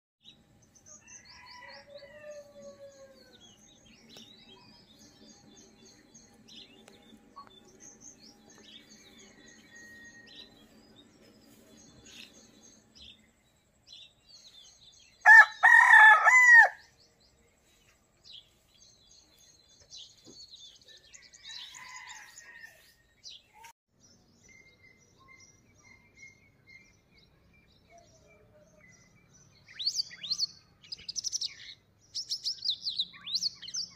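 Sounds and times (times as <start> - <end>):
small birds chirping: 0.2 - 16.2, 16.8 - 33.9
rooster crowing: 0.9 - 3.4, 9.0 - 10.6, 15.2 - 16.9, 21.1 - 22.9.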